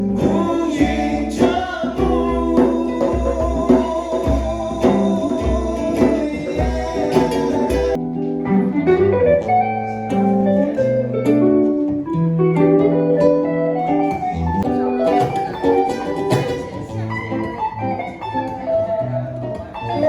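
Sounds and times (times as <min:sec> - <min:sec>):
low thumping drum beat: 0:00.0 - 0:08.0
strummed acoustic guitar: 0:00.0 - 0:20.0.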